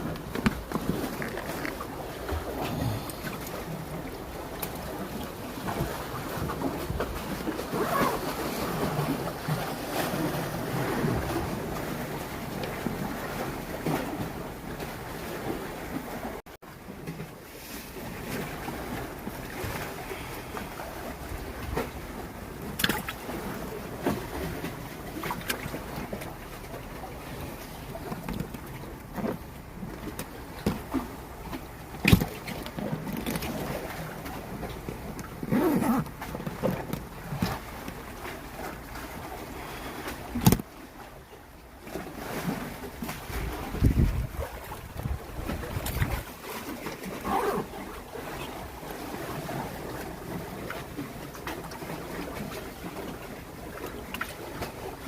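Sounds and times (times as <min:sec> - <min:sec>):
sea waves washing: 0:00.0 - 0:16.4, 0:17.4 - 0:36.3, 0:37.2 - 0:41.0
water noise: 0:00.0 - 0:55.0
wind buffeting microphone: 0:43.3 - 0:46.3.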